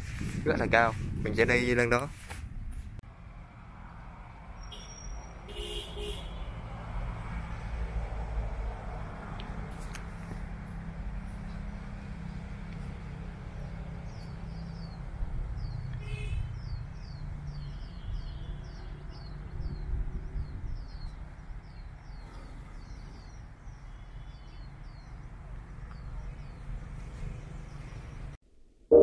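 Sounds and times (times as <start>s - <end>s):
low rumble of vehicle and wind: 0.0s - 28.4s
birds chirping: 4.6s - 6.5s, 11.3s - 28.4s.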